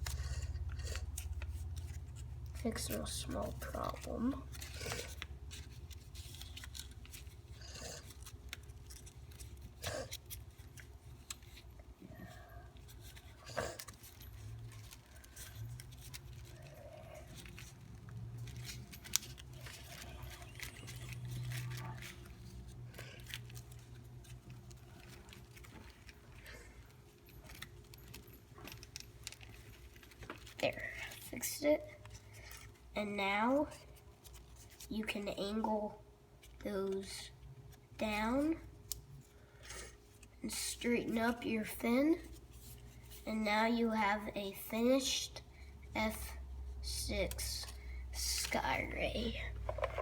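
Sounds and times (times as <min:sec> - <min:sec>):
paper crinkling and rustling: 0:00.0 - 0:31.3, 0:33.8 - 0:35.0, 0:42.2 - 0:43.2, 0:46.7 - 0:50.0
low steady hum: 0:00.0 - 0:50.0.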